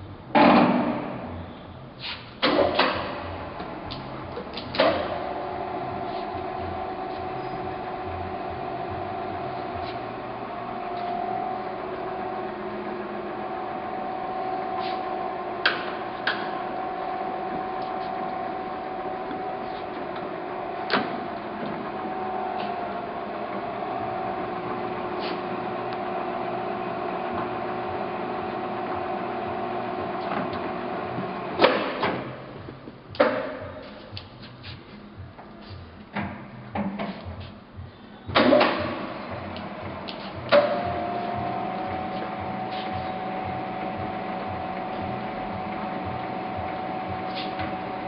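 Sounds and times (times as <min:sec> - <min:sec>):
lathe humming with whine: 0:03.2 - 0:31.6, 0:39.0 - 0:48.0.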